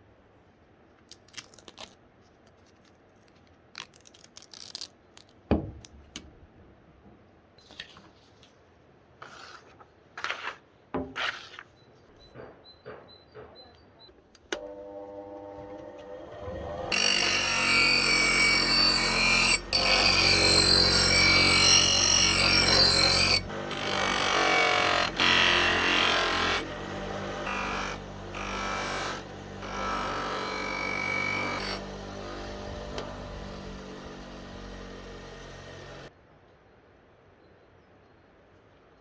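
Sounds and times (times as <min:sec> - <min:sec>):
power tool running on metal: 0:14.6 - 0:36.1.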